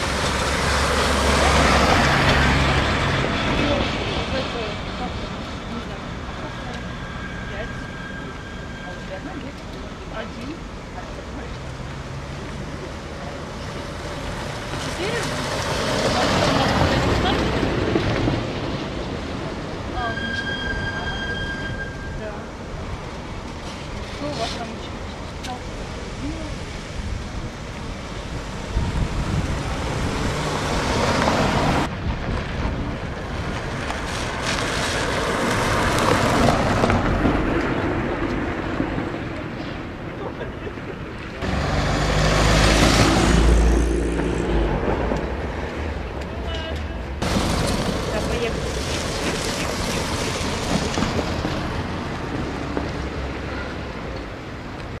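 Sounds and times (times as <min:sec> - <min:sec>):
road vehicles passing: 0:00.0 - 0:55.0
wind on microphone: 0:24.8 - 0:41.5.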